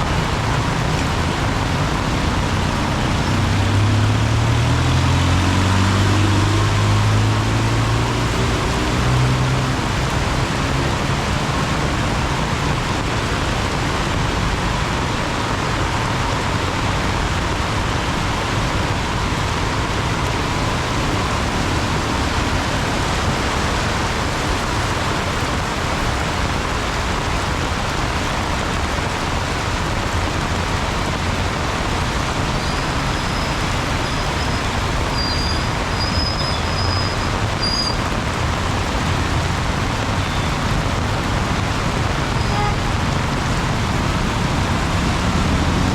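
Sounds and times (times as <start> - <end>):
heavy rain on an umbrella: 0.0 - 45.9
road traffic: 0.0 - 45.9
short high squeals: 32.6 - 38.0.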